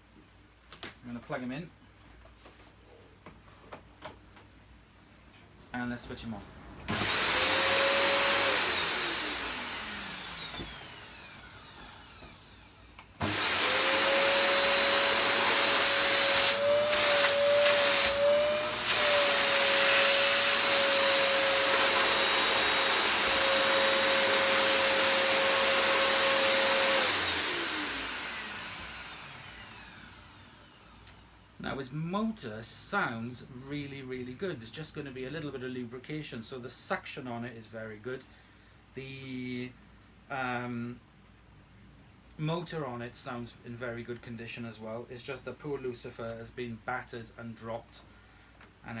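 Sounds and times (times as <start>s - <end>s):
vacuum cleaner motor: 6.9s - 31.3s.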